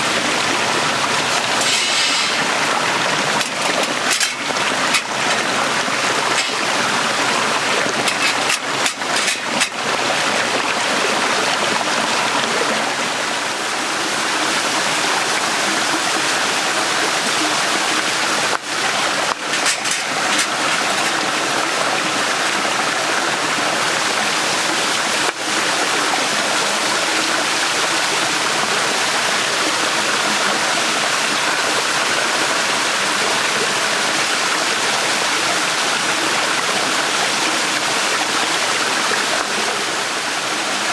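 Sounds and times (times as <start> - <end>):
stream flowing over stones: 0.0 - 40.9.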